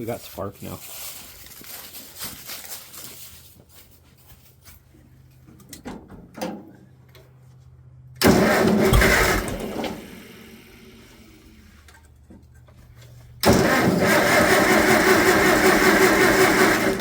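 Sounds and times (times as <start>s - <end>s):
engine cranked by starter: 8.2s - 12.1s, 13.2s - 17.0s.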